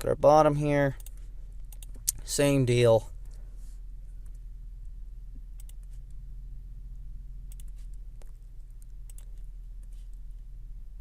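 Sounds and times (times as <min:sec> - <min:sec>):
low electrical hum: 0:00.0 - 0:11.0
keyboard and mouse clicks: 0:01.0 - 0:02.2, 0:05.6 - 0:06.0, 0:07.5 - 0:10.0.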